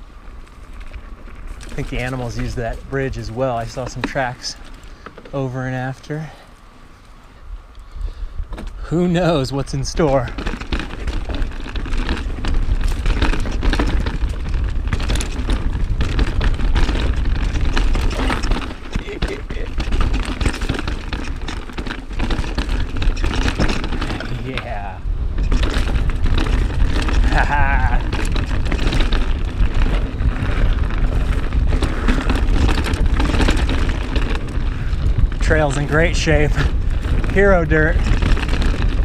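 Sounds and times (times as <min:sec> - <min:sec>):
tyres rolling over dirt and rocks: 0:00.0 - 0:07.2, 0:08.6 - 0:39.0
bike clicks and rattles: 0:00.0 - 0:39.0
wind buffeting microphone: 0:00.0 - 0:39.0.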